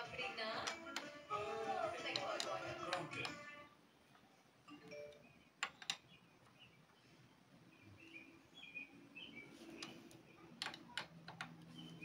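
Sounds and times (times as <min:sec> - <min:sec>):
faint bird chirps: 0:11.6 - 0:12.0.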